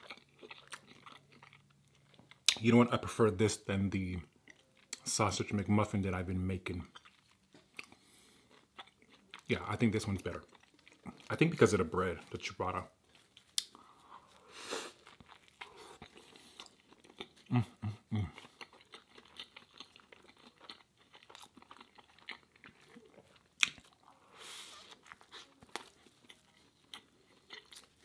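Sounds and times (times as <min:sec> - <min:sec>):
sandwich crunching while chewing: 0:00.0 - 0:02.6, 0:13.0 - 0:28.0.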